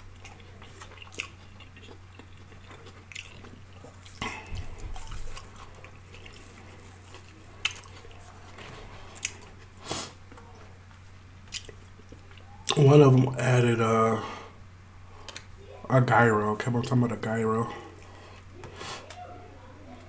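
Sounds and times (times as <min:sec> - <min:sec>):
faint low hum: 0:00.0 - 0:20.0
person biting and chewing: 0:00.1 - 0:08.3, 0:09.1 - 0:09.7.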